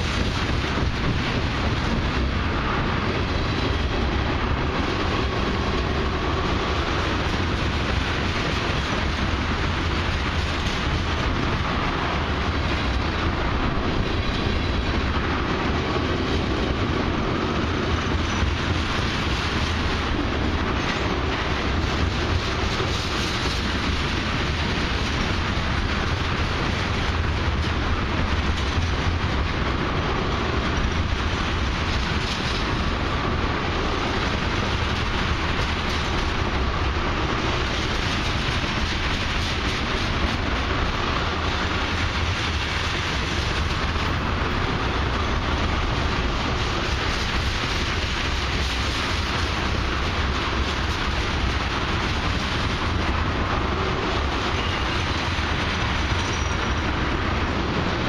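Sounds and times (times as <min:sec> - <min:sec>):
freight train wheels on rails: 0:00.0 - 0:58.0.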